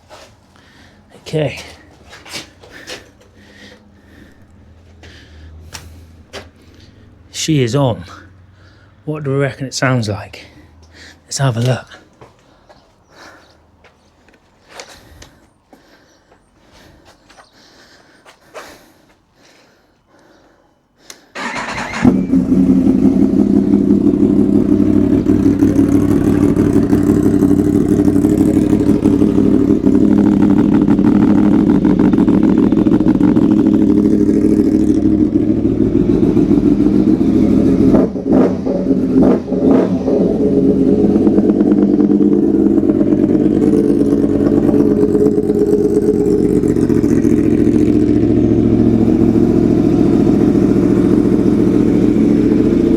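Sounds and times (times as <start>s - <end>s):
motorcycle engine idling: 0.4s - 9.1s, 21.4s - 52.9s
motorcycle engine cranking: 21.4s - 52.9s.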